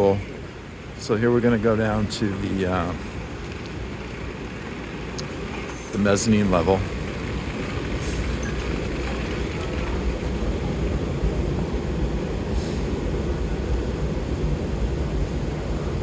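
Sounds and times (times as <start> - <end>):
escalator running: 1.4 - 12.4.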